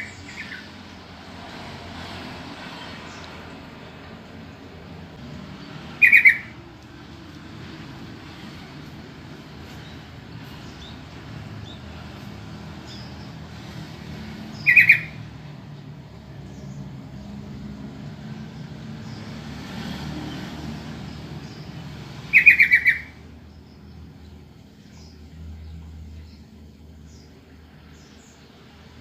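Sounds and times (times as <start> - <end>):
bird calling quick notes: 6.0 - 6.6, 14.6 - 15.2, 22.3 - 23.2.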